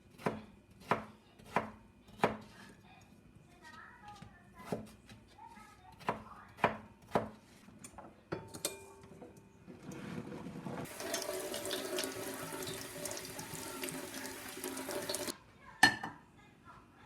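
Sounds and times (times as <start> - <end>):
tap water running into sink: 10.9 - 15.3.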